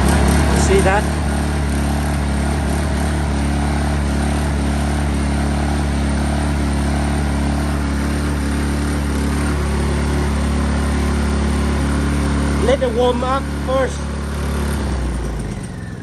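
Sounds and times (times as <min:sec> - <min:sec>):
generator engine running: 0:00.0 - 0:16.0.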